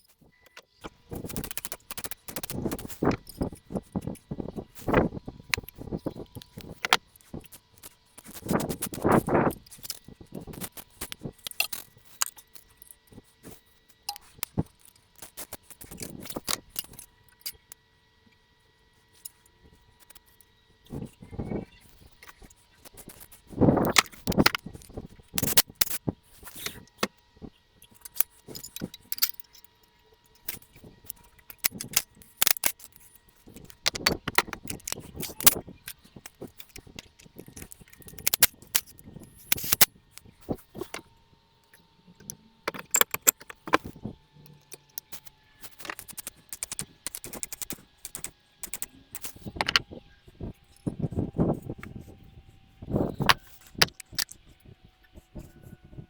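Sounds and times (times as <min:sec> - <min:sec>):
metal tools clinking and clattering: 0:42.2 - 0:44.0.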